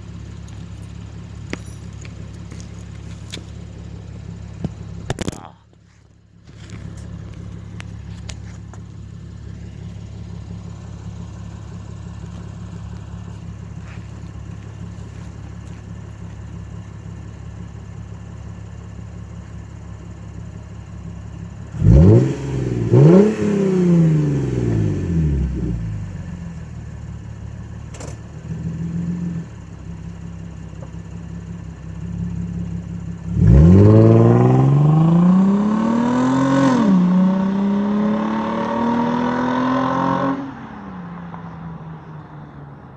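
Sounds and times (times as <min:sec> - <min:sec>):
car engine idling and revving: 0:00.0 - 0:42.9
car accelerating hard: 0:21.7 - 0:26.2, 0:32.7 - 0:42.9.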